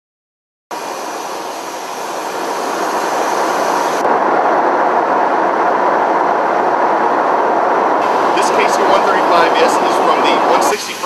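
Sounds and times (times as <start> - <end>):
jet aircraft engine: 0.7 - 11.0.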